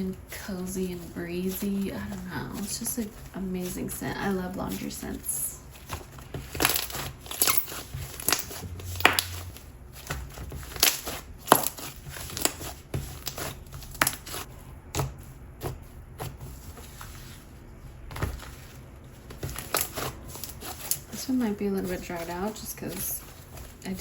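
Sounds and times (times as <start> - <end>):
hands squishing slime: 5.8 - 17.0, 19.3 - 24.0.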